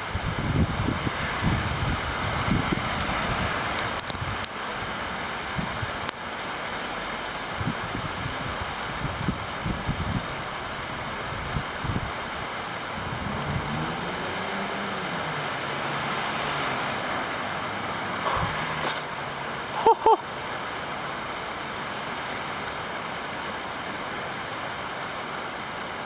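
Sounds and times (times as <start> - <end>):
heavy rain hissing: 0.0 - 26.0
low rumbles: 11.5 - 19.4
vehicle engine passing: 12.7 - 19.6.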